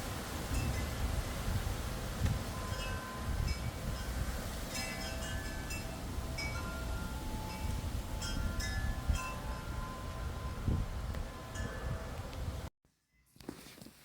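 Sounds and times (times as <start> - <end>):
wind rumble on microphone: 0.0 - 12.7
wind chimes ringing: 2.5 - 12.2.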